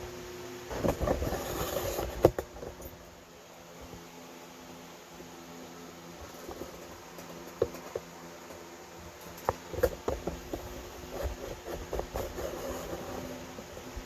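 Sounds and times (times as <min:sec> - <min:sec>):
exhaust fan humming: 0:00.0 - 0:14.0.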